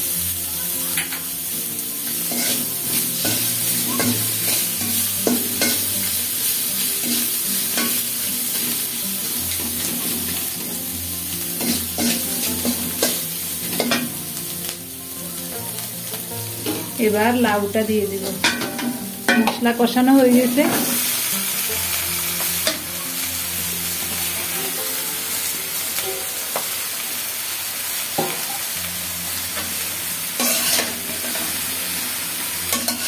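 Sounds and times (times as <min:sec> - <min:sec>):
spice paste sizzling in oil: 0:00.0 - 0:33.0
metal spatula scraping pan: 0:02.2 - 0:05.9, 0:30.4 - 0:31.5.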